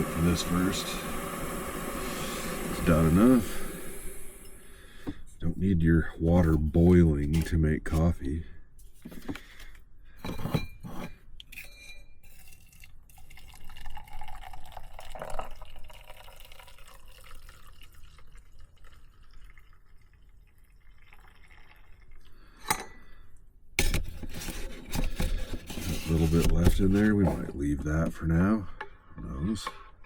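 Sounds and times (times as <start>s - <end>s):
water pouring into cup: 0.0s - 4.9s, 12.3s - 22.6s.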